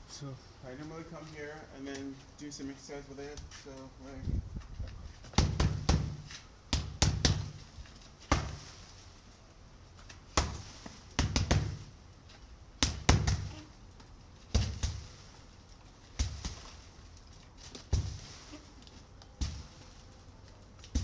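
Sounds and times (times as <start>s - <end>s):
punches thudding on sandbag: 5.2s - 8.8s, 10.3s - 12.0s, 12.8s - 13.7s, 14.5s - 15.4s, 16.1s - 16.8s, 17.7s - 18.5s, 19.4s - 19.9s.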